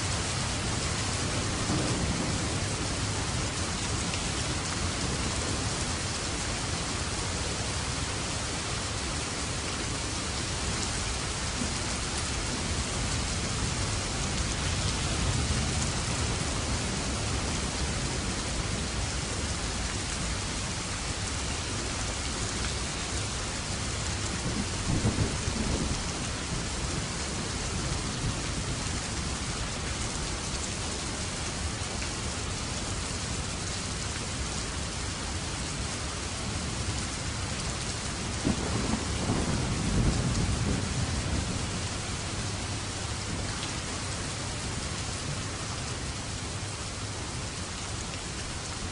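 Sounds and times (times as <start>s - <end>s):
heavy rain: 0.0s - 48.9s
rolling thunder: 1.1s - 3.6s, 24.3s - 27.0s, 38.4s - 42.4s.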